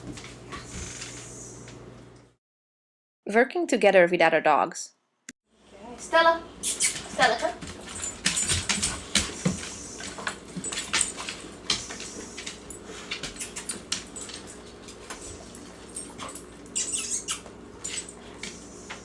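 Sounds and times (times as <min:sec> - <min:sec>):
dog noises: 0:06.6 - 0:19.0
dog claws clicking and scuffing: 0:06.7 - 0:19.0.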